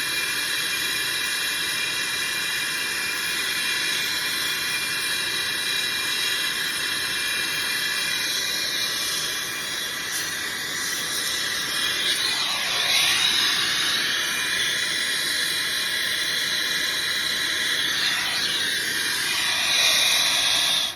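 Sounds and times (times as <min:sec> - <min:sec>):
torch flame hissing: 0:00.2 - 0:20.9.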